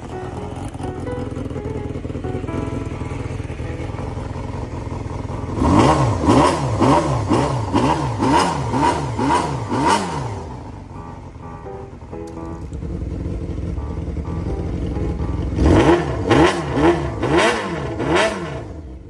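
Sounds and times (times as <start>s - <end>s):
motorcycle engine revving rhythmically: 0.0s - 19.0s.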